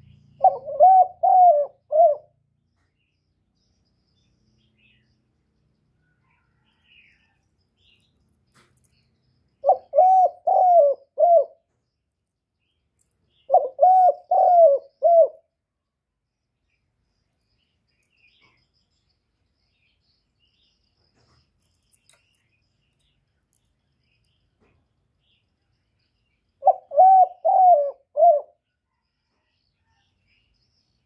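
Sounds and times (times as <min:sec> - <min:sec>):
dove cooing: 0:00.4 - 0:02.4, 0:09.6 - 0:11.6, 0:13.5 - 0:15.5, 0:26.6 - 0:28.6.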